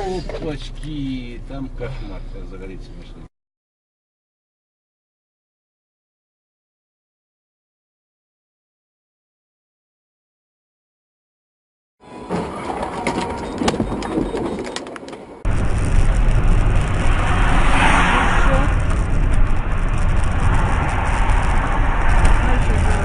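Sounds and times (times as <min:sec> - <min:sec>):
car engine and road noise: 0:00.0 - 0:03.3, 0:12.0 - 0:23.0.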